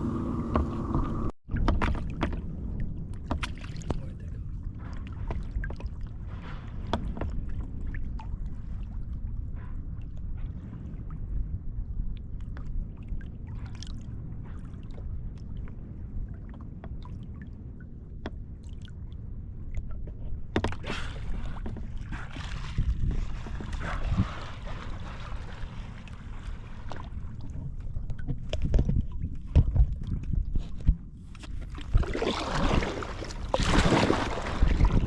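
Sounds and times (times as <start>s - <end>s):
water slapping hull: 0.0s - 19.2s, 19.9s - 35.0s
low rumble of water and wind: 0.0s - 35.0s
paddle splashes: 3.2s - 9.0s, 20.5s - 30.0s, 30.7s - 35.0s.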